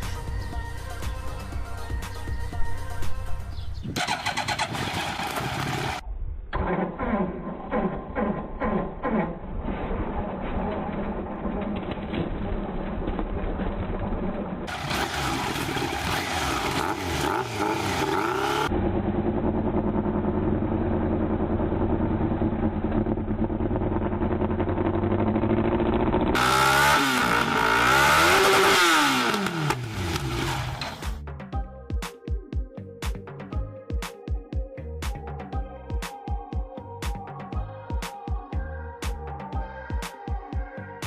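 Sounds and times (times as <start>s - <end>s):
motorcycle engine revving: 3.9s - 6.0s, 10.4s - 31.2s.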